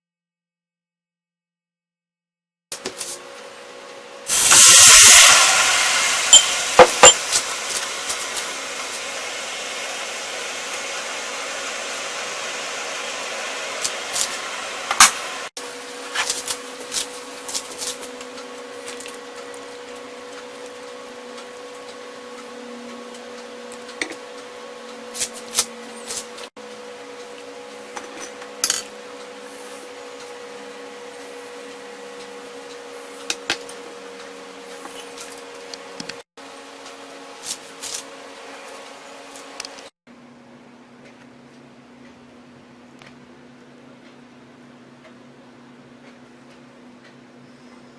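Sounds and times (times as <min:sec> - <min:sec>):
hot oil sizzling: 0:04.3 - 0:18.0.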